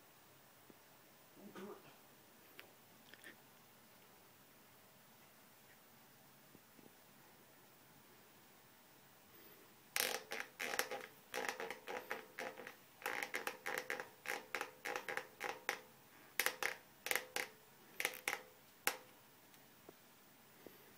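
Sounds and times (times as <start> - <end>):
bicycle saddle creaking: 10.0 - 19.1.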